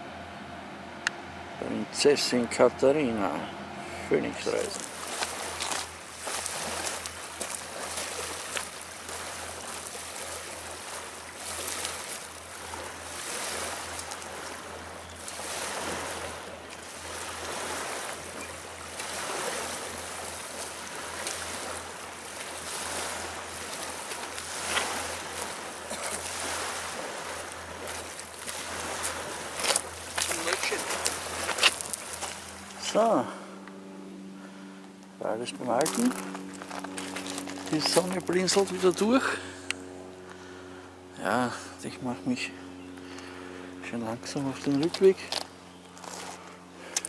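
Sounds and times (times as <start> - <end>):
river water washing against stones: 4.2 - 33.2, 35.5 - 40.2, 44.2 - 47.0.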